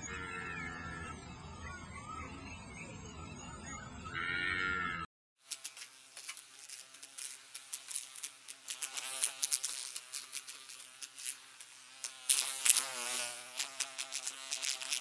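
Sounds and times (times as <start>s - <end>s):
insect wings buzzing: 5.4s - 15.0s.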